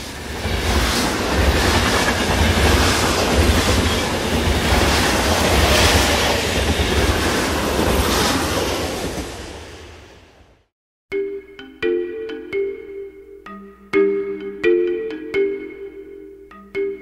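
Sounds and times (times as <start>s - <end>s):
train rumbling on rails: 0.0s - 10.6s.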